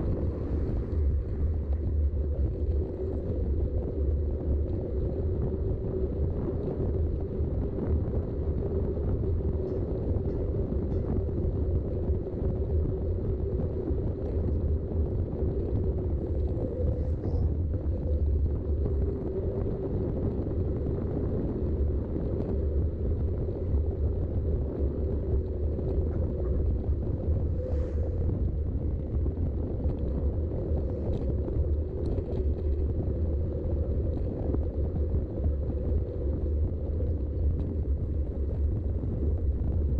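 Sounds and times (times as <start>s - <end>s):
wind buffeting microphone: 0.0s - 39.9s
bike tyres rolling: 11.2s - 39.9s.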